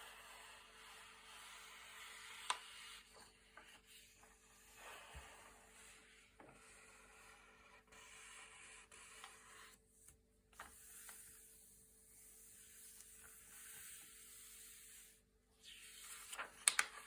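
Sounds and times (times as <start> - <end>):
paper pages rustling: 16.0 - 17.0.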